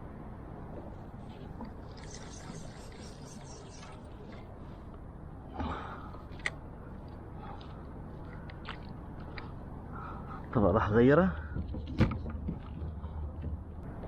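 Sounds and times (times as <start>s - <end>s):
wind: 0.0s - 14.0s
water noise: 0.6s - 5.4s.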